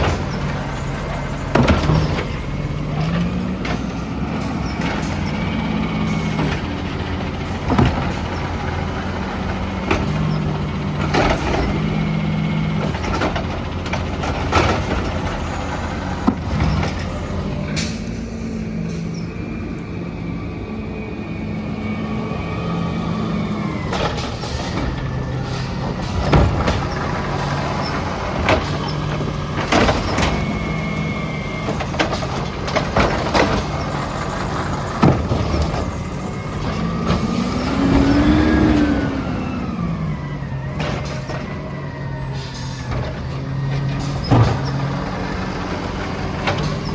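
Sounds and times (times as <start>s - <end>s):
garbage truck engine revving: 0.0s - 46.9s
sharp knocks and clanks: 1.4s - 18.0s, 25.8s - 30.8s, 31.6s - 38.8s, 42.8s - 46.9s.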